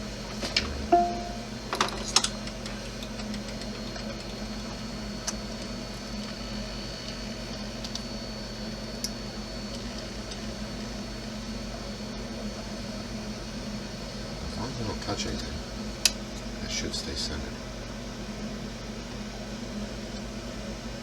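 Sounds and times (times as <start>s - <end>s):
low electrical hum: 0.4s - 3.2s.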